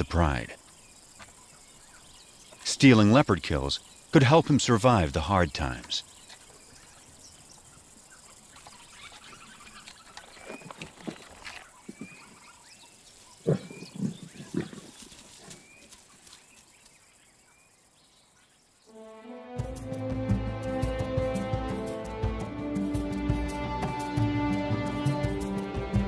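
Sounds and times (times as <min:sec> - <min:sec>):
bird chirping: 0:00.0 - 0:19.0
lions growling and grunting: 0:13.4 - 0:15.6.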